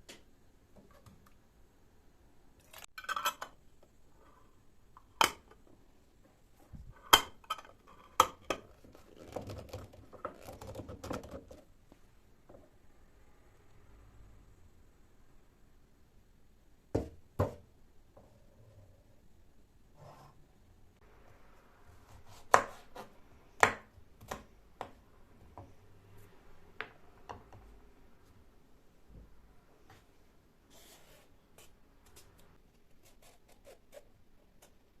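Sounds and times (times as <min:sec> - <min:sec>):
knife chopping on cutting board: 0:22.1 - 0:25.0.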